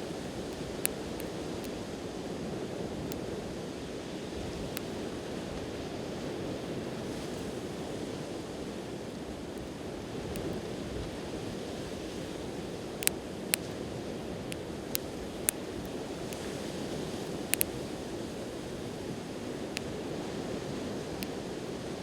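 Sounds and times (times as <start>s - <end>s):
campfire crackling and popping: 0.0s - 1.9s.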